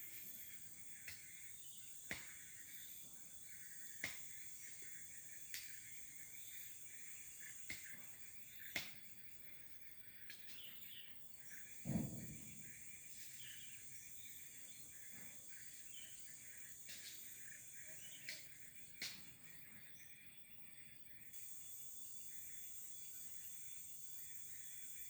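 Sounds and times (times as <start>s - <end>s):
insect drone: 0.0s - 25.0s
low thump or rustle: 11.8s - 12.8s.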